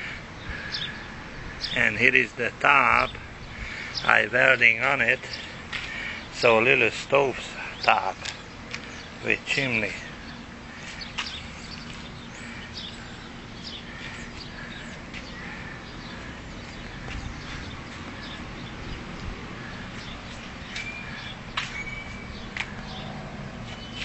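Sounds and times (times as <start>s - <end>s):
faint steady hum: 0.0s - 23.6s
bird chirps: 19.8s - 24.0s.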